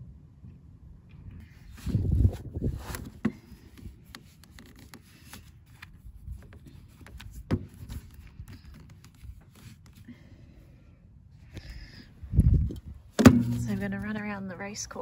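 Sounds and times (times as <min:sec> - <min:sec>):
light rubbing handling sounds: 0:01.4 - 0:10.1, 0:12.4 - 0:15.0.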